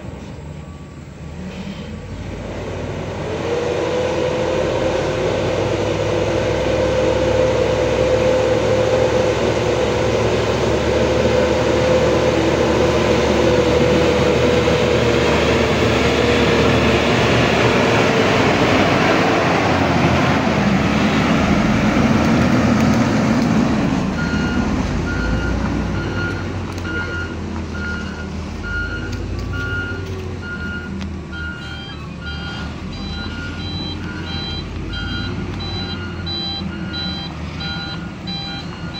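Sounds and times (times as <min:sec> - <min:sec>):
truck diesel engine running: 0:00.0 - 0:38.9
reversing alarm beeping: 0:24.2 - 0:38.9.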